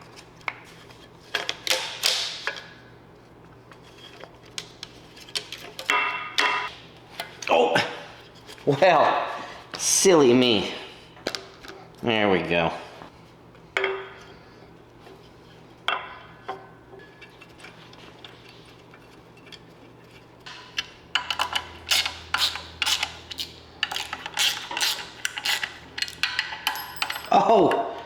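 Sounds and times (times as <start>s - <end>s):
metal parts and tools clinking: 20.5s - 28.0s.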